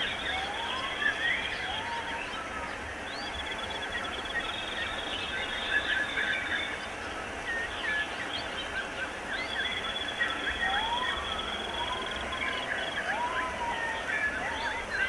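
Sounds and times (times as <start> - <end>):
birds chirping: 0.0 - 15.0
low rising and falling whistles: 9.6 - 15.0.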